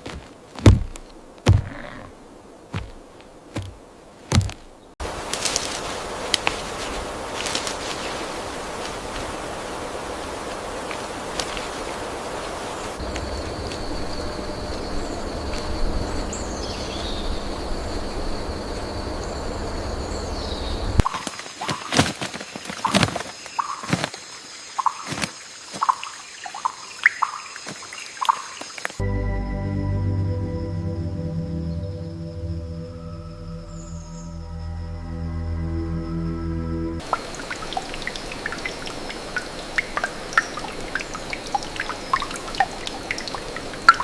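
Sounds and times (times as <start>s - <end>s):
soft steady hiss: 0.0s - 31.6s
water drops plinking: 37.0s - 44.0s.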